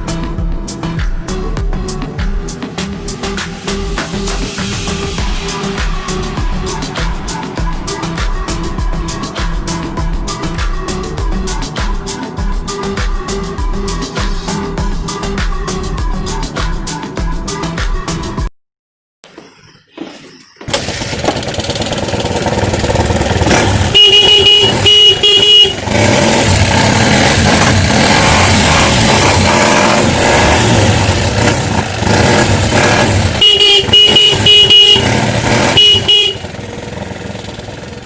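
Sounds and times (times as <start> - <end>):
motorcycle engine running: 20.7 - 38.0
motorcycle horn short beeps: 23.4 - 26.2, 32.8 - 36.6.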